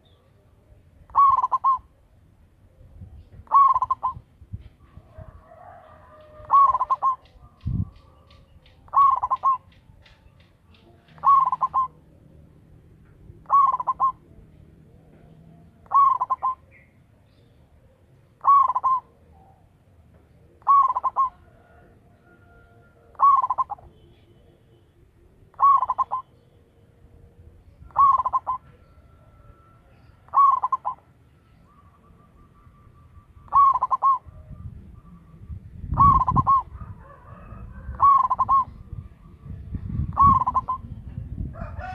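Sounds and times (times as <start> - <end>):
dove cooing: 1.0 - 2.0, 3.0 - 4.2, 5.0 - 10.4, 11.1 - 12.1, 13.2 - 16.8, 17.8 - 19.6, 20.5 - 23.8, 25.5 - 26.4, 27.7 - 32.8, 33.4 - 39.0, 39.9 - 41.9.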